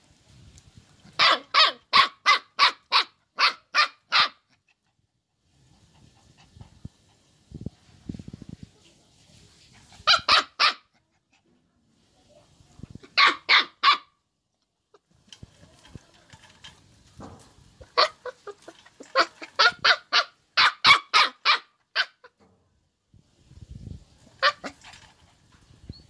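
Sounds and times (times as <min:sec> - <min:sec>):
dog barking: 0:01.2 - 0:04.4, 0:10.0 - 0:10.9, 0:13.1 - 0:14.1, 0:19.6 - 0:22.2.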